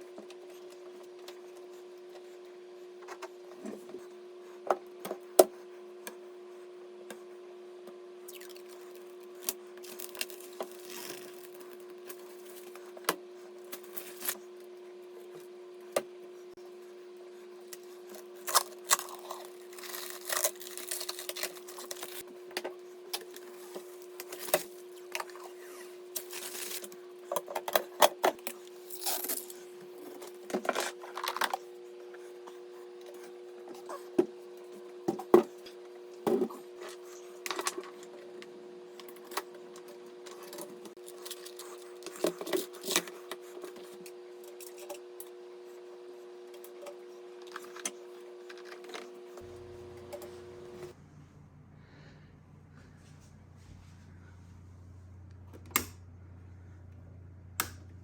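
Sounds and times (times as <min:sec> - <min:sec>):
steady hum: 0:00.0 - 0:58.0.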